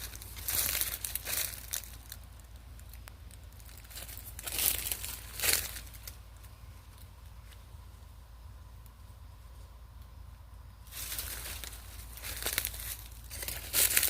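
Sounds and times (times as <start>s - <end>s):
dry leaves crackling and rustling: 0.0s - 7.8s, 10.8s - 14.0s.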